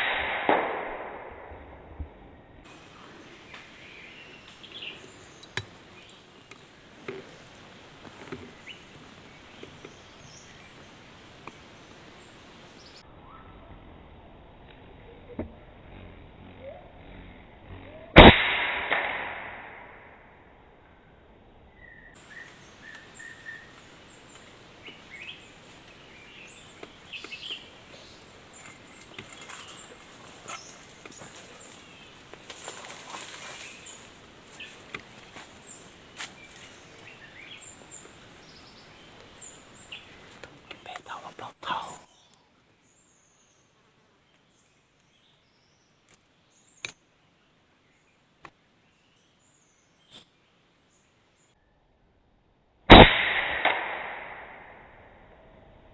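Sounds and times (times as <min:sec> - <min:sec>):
small birds chirping: 0:02.6 - 0:18.2, 0:21.7 - 0:51.7.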